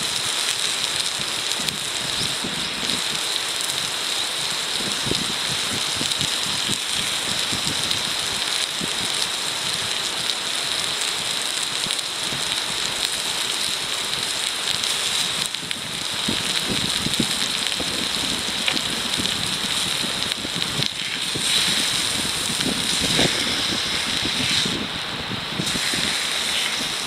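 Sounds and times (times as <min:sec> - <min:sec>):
food sizzling in a frying pan: 0:00.0 - 0:27.0.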